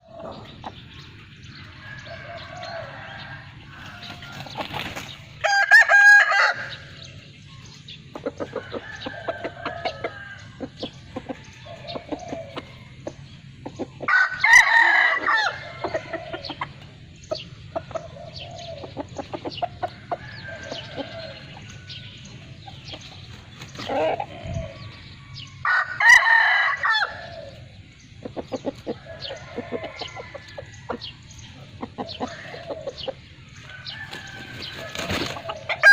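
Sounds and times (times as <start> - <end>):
chickens clucking: 0.0 - 35.9
rooster crowing: 1.8 - 4.5, 5.4 - 6.9, 14.1 - 16.3, 23.9 - 27.5, 33.7 - 35.9.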